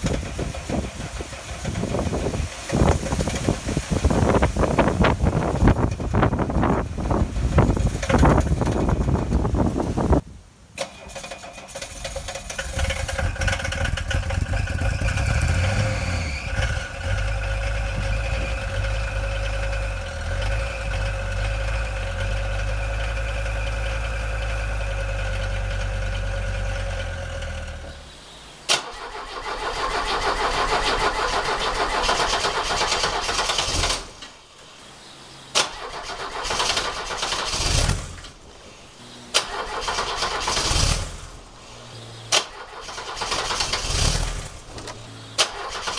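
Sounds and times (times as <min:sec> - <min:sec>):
diesel car engine running: 0:00.0 - 0:10.2, 0:11.9 - 0:28.3
diesel engine cranking: 0:00.0 - 0:34.4, 0:35.6 - 0:38.5, 0:39.3 - 0:45.9.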